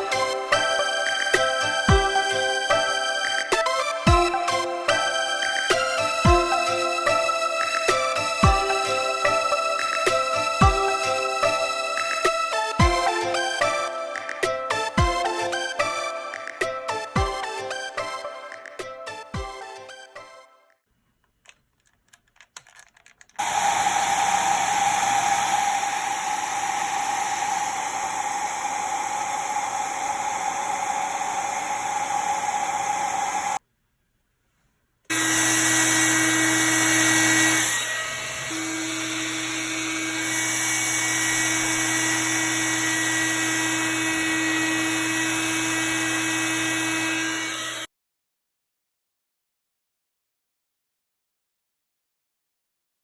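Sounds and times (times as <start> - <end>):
hair dryer running: 23.4 - 33.6, 35.1 - 47.9.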